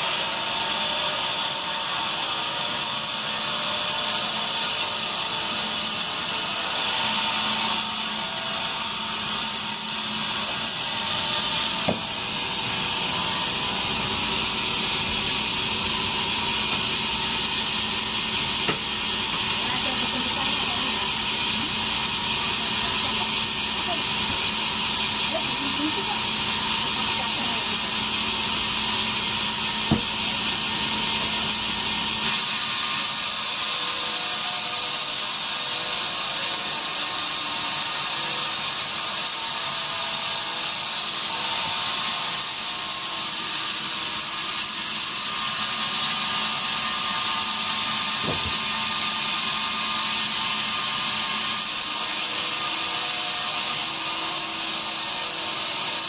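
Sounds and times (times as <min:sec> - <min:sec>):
bandsaw cutting wood: 0:00.0 - 0:56.0
sharp knocks: 0:11.8 - 0:12.2, 0:29.9 - 0:30.2, 0:48.2 - 0:48.7.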